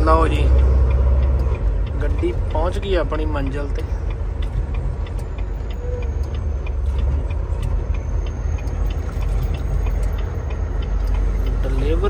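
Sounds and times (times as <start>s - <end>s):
diesel truck engine rumbling: 0.0s - 12.0s
faint regular ticking: 0.0s - 12.0s.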